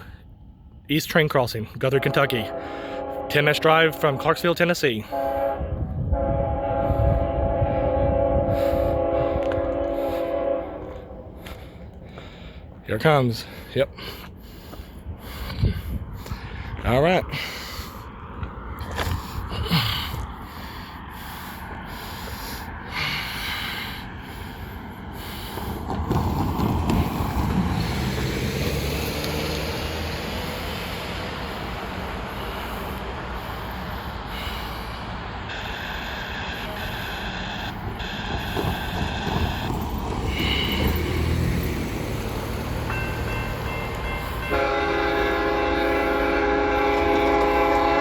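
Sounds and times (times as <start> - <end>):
low train rumble: 0.0 - 48.0
train horn blasts: 1.8 - 11.7, 35.4 - 39.7, 40.4 - 48.0.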